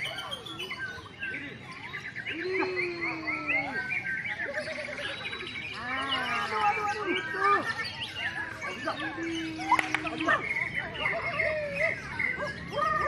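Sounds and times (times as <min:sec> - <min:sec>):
songbirds singing: 0:00.0 - 0:13.0.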